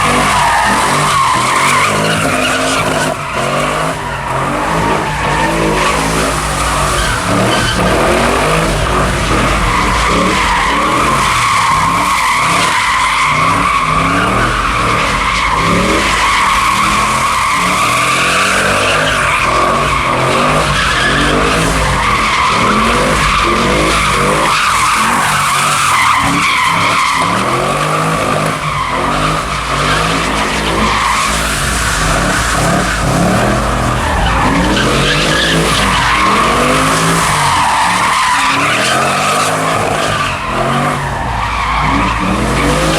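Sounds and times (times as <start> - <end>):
car engine revving: 0.0 - 42.9
tyres squealing: 0.0 - 42.9.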